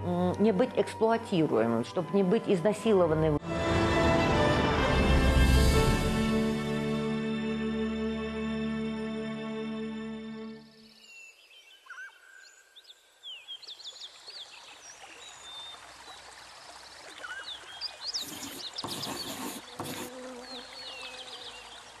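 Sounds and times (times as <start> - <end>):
small birds twittering: 10.8 - 22.0
outdoor background hiss: 12.4 - 22.0.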